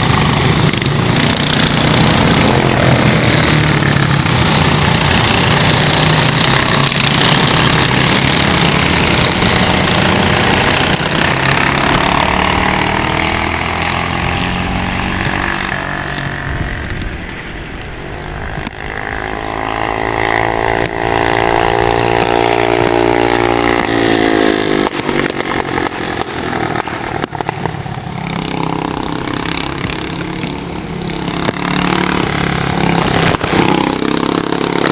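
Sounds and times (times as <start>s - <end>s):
go-kart engine running: 0.0s - 34.9s.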